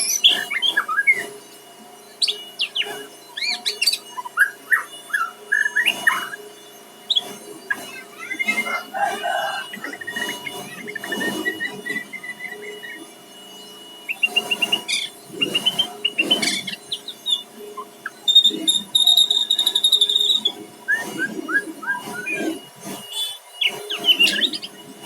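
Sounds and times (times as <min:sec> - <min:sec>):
songbird singing: 0:14.1 - 0:22.4.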